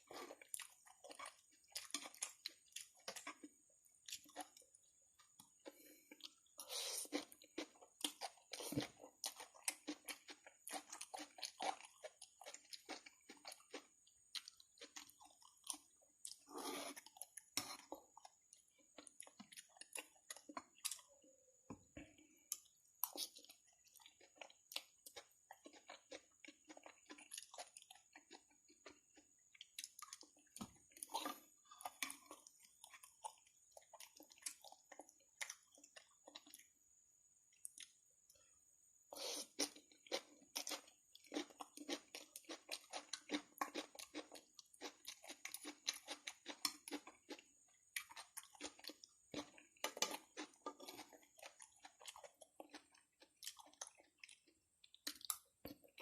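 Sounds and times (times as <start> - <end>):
wet chewing mouth clicks: 48.0 - 56.0.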